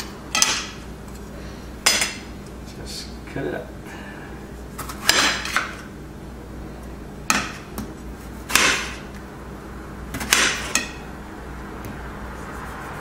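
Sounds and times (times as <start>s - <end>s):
knife chopping on cutting board: 7.3s - 9.0s, 10.1s - 11.0s.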